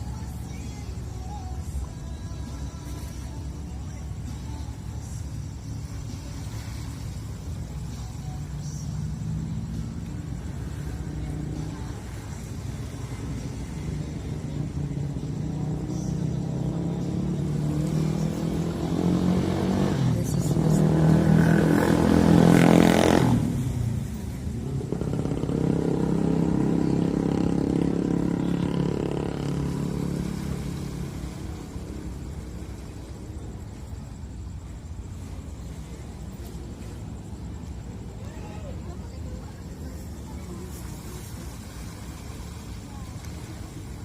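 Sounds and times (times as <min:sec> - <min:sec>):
softer vehicle passing: 0:06.2 - 0:44.0
vehicle engine passing by: 0:12.8 - 0:33.3.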